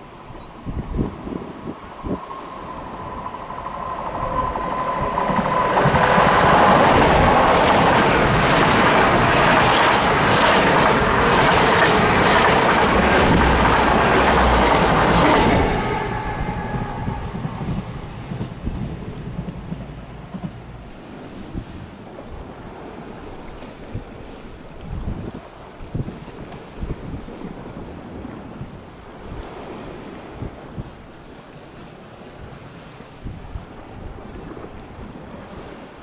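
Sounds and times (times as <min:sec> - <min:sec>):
train passing at speed: 0:00.0 - 0:23.9
wheel squeals: 0:12.2 - 0:19.3.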